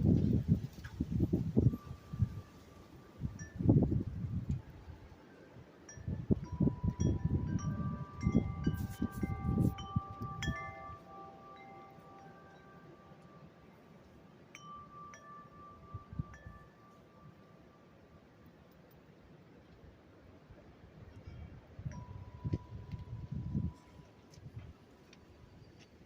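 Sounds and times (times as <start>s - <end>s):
wind rumbling on microphone: 0.0s - 12.5s, 20.5s - 26.0s
wind chimes ringing: 1.2s - 18.1s, 21.8s - 24.2s.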